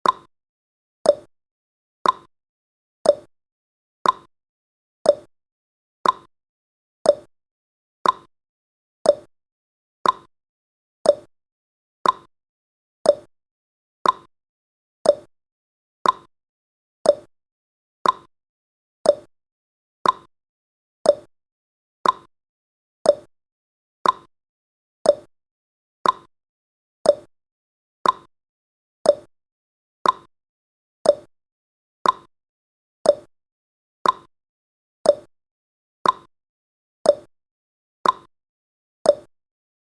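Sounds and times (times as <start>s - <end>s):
timer ticking tick-tock: 0.0s - 0.3s, 1.0s - 1.3s, 2.0s - 2.3s, 3.0s - 3.3s, 4.0s - 4.3s, 5.0s - 5.3s, 6.0s - 6.3s, 7.0s - 7.3s, 8.0s - 8.3s, 9.0s - 9.3s, 10.0s - 10.3s, 11.0s - 11.3s, 12.0s - 12.3s, 13.0s - 13.3s, 14.0s - 14.3s, 15.0s - 15.3s, 16.0s - 16.3s, 17.0s - 17.3s, 18.0s - 18.3s, 19.0s - 19.3s, 20.0s - 20.3s, 21.0s - 21.3s, 22.0s - 22.3s, 23.0s - 23.3s, 24.0s - 24.3s, 25.0s - 25.3s, 26.0s - 26.3s, 27.0s - 27.3s, 28.0s - 28.3s, 29.0s - 29.3s, 30.0s - 30.3s, 31.0s - 31.3s, 32.0s - 32.3s, 33.0s - 33.3s, 34.0s - 34.3s, 35.0s - 35.3s, 36.0s - 36.3s, 37.0s - 37.3s, 38.0s - 38.3s, 39.0s - 39.4s.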